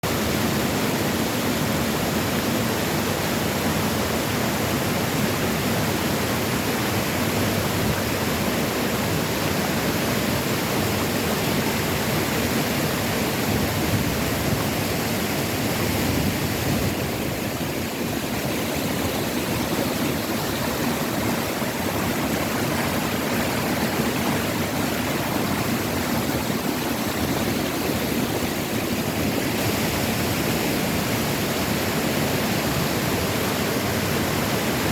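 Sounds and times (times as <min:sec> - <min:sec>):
waterfall pouring: 0:17.4 - 0:30.3.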